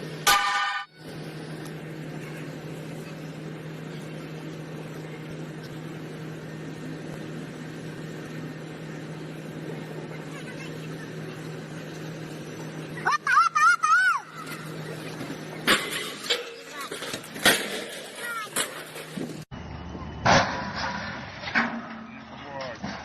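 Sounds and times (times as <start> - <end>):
constant background noise: 0.0 - 23.0
low engine hum: 0.9 - 15.7.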